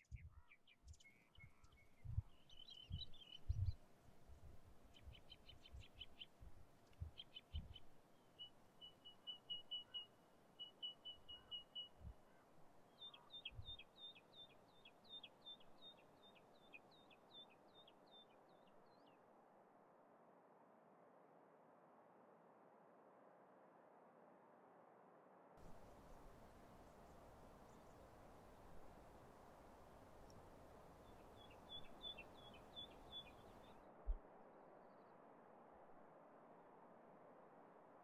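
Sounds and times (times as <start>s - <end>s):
faint bird chirps and trills: 0.0s - 19.2s, 25.6s - 33.8s.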